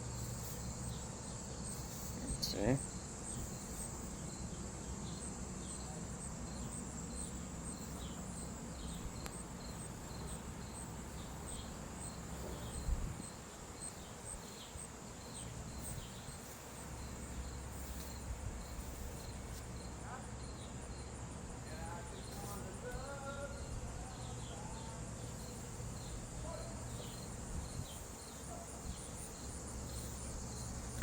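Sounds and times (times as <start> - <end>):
insects chirping: 0.0 - 31.0.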